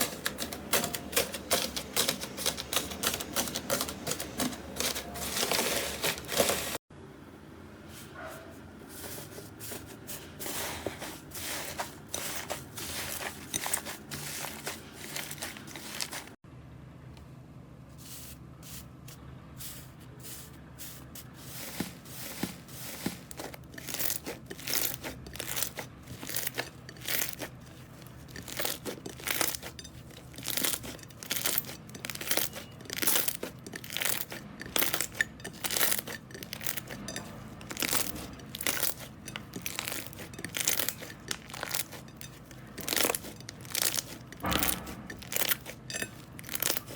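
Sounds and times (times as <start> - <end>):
slime crackling and popping: 37.8 - 46.9.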